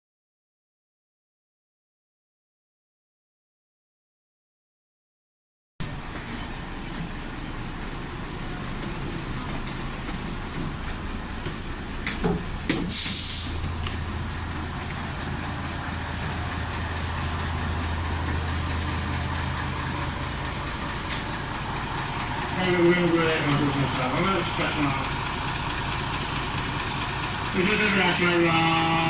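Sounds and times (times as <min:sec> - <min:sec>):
large vehicle humming: 0:05.8 - 0:29.0
air brake hiss: 0:12.8 - 0:13.6.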